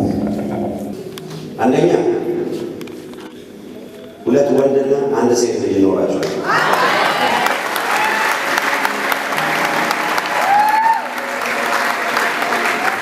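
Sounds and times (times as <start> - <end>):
crowd applauding and cheering: 6.4 - 13.0.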